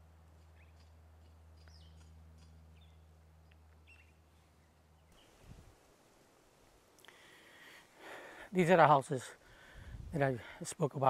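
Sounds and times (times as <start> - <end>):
bird chirps: 1.6 - 3.1, 3.8 - 5.5.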